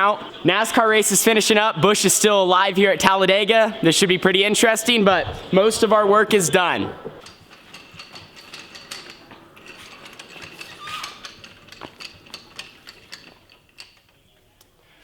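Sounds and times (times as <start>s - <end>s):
clicks and clinks of parts: 7.2s - 14.7s.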